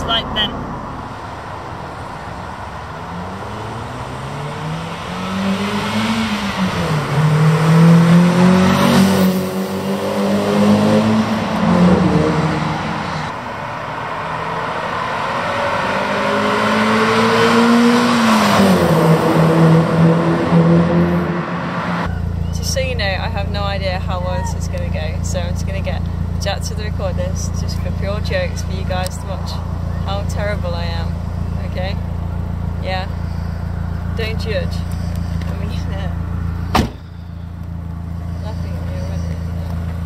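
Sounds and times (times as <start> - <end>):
car engine accelerating: 0.0 - 40.0.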